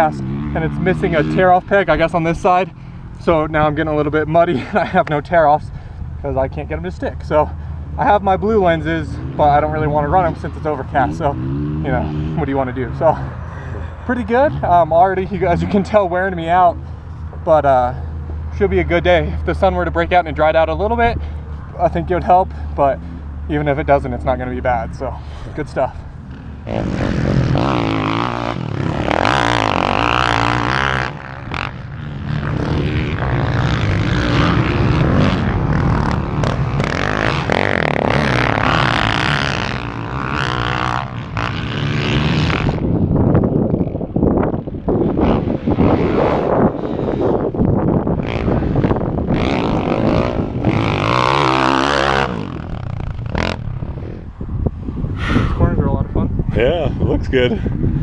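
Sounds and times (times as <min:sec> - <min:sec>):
dirt bike revving hard: 0:00.0 - 0:05.0, 0:08.0 - 0:16.8, 0:25.0 - 0:43.2, 0:43.8 - 0:54.2.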